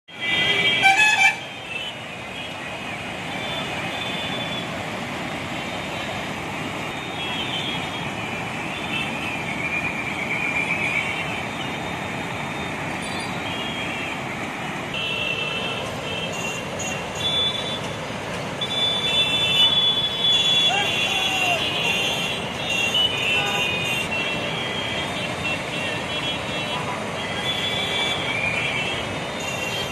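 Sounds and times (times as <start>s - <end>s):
high vehicle horn tones: 0.1s - 2.5s, 14.9s - 18.0s, 18.6s - 29.9s
river rushing: 0.1s - 29.9s.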